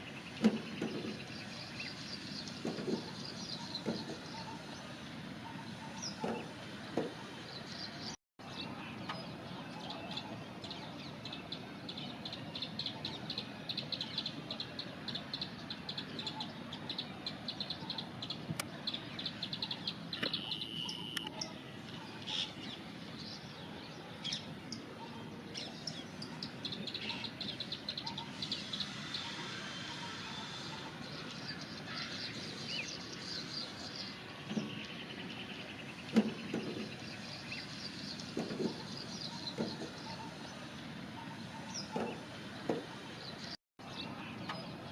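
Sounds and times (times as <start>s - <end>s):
bird singing rapid high notes: 15.1s - 21.6s.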